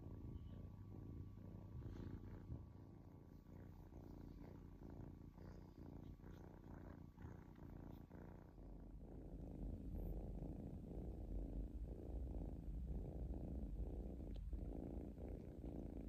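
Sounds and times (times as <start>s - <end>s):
kitten purring: 0.0s - 16.0s.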